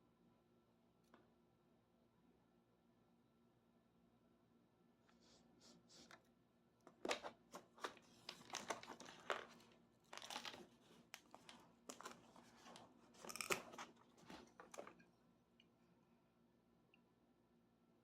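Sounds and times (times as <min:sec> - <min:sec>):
packaging rustling and tearing: 0:07.1 - 0:14.9.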